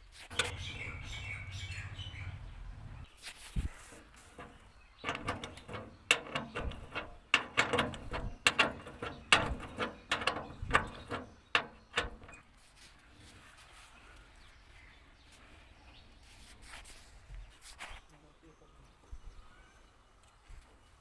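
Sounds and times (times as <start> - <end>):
hand tools clinking on metal: 4.4 - 12.5.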